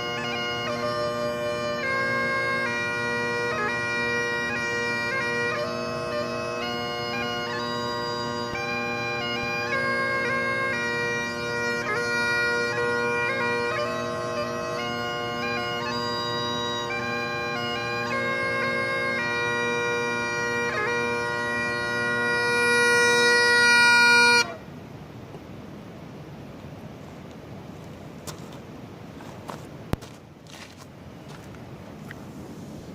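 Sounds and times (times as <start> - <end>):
bagpipes playing a march: 0.0 - 24.6.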